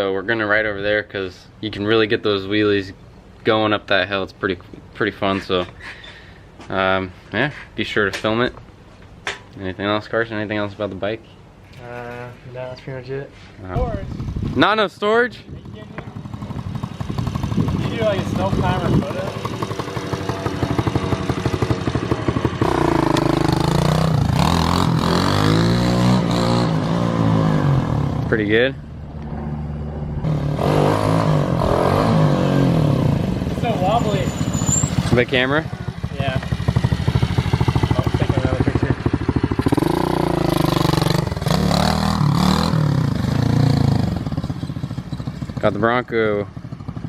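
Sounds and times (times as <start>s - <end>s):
small motorcycle engine revving: 16.2s - 28.2s, 30.2s - 45.7s.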